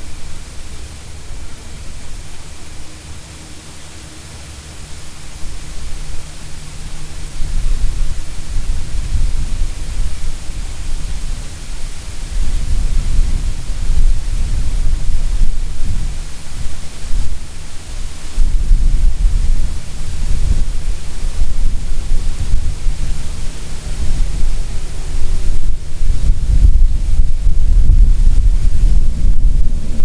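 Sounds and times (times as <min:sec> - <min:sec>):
car road and wind noise: 0:18.2 - 0:30.0.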